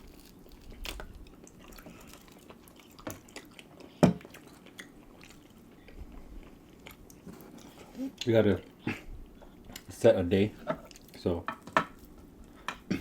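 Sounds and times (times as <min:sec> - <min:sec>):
people chewing: 0:00.0 - 0:10.0.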